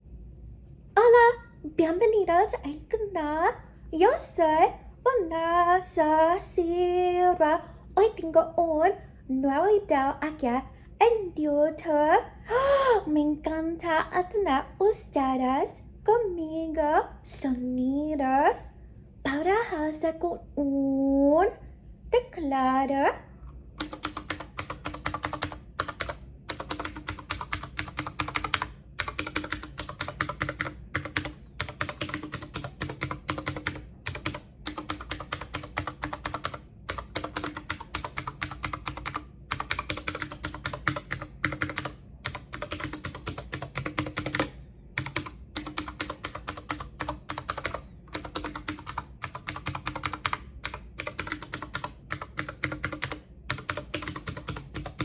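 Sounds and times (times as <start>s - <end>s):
rapid keyboard typing: 23.8s - 55.0s.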